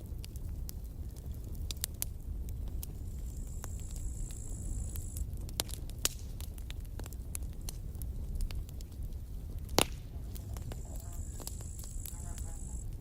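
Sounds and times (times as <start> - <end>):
burning wood crackling and popping: 0.0 - 13.0
campfire rumble: 0.0 - 13.0.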